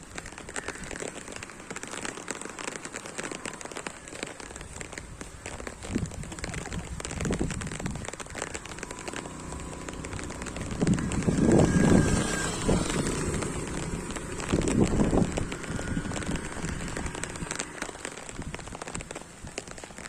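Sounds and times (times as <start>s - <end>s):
raindrops ticking on a surface: 0.0s - 20.0s
steady rain hiss: 0.0s - 20.0s
low swelling sound: 8.4s - 17.9s.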